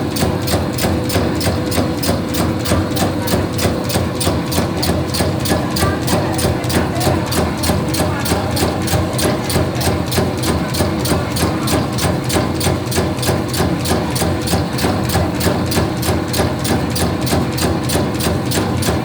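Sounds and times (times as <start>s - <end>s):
machine motor hum: 0.0s - 19.0s
regular mechanical clacking: 0.1s - 19.0s.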